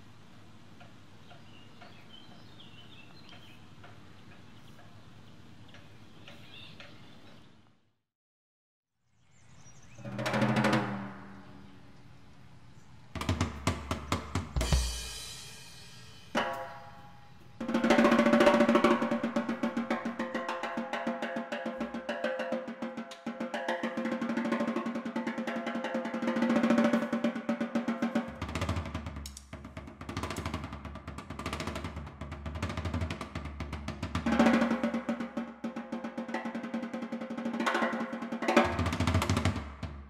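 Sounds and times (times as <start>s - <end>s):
drum and percussion beat: 10.1s - 11.3s, 13.2s - 40.0s.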